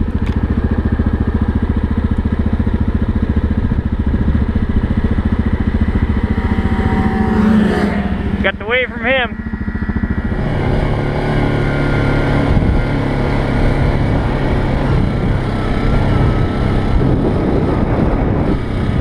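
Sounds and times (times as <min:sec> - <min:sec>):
atv engine running: 0:00.0 - 0:19.0
faint wavering whine: 0:02.8 - 0:15.5.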